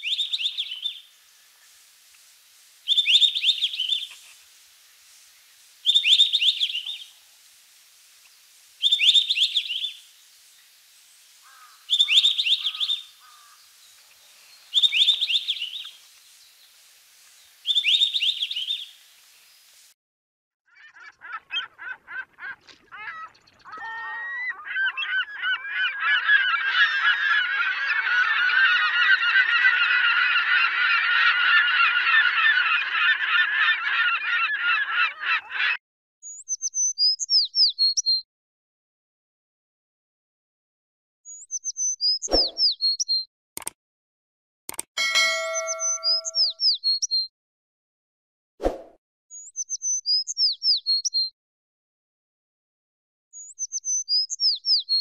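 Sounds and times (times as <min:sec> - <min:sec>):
robin singing: 0:14.5 - 0:16.0, 0:17.6 - 0:18.9, 0:36.2 - 0:38.2, 0:41.3 - 0:43.2, 0:45.0 - 0:47.3, 0:49.3 - 0:51.3, 0:53.4 - 0:55.0
gulls calling: 0:20.8 - 0:35.8, 0:45.0 - 0:46.6.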